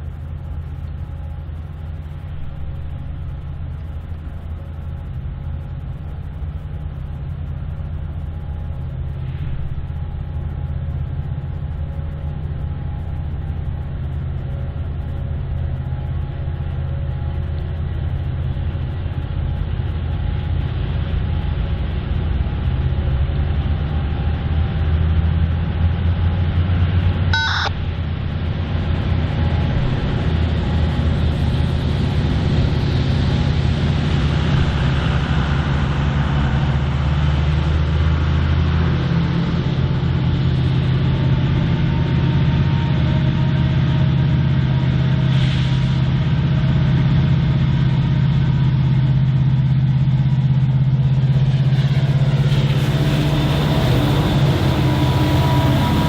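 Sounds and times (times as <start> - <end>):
diesel locomotive engines rumbling: 0.0 - 56.0
short sharp sound: 27.4 - 27.7.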